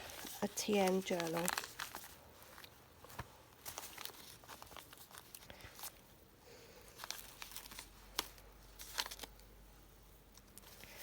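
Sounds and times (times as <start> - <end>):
paper rustling and crinkling: 0.0 - 6.1, 6.8 - 9.4.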